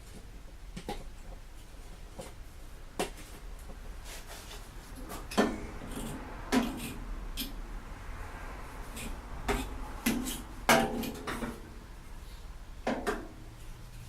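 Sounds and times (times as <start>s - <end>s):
tools scraping: 4.0s - 7.6s, 8.8s - 11.7s.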